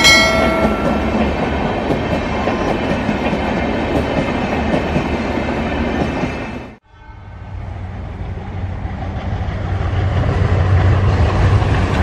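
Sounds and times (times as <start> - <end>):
short chime: 0.0 - 1.2
train rumbling and clattering: 0.0 - 6.8, 7.6 - 12.0.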